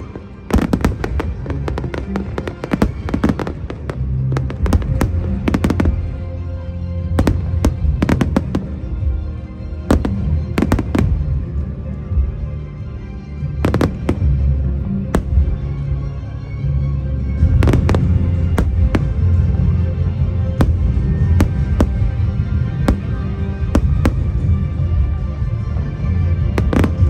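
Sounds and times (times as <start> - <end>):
fireworks banging: 0.0 - 6.2, 7.1 - 9.2, 9.9 - 11.3, 13.6 - 14.4, 15.1 - 15.7, 17.4 - 24.9, 26.5 - 27.0
music playing: 0.0 - 27.0.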